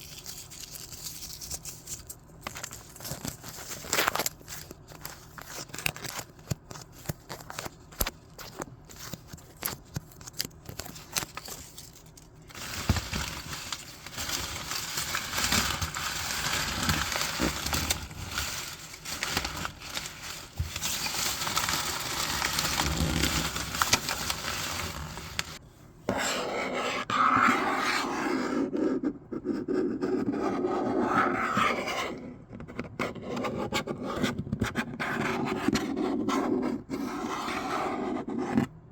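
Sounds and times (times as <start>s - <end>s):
paper crackling: 0.0s - 25.6s
paper scraping and rubbing: 7.0s - 25.6s.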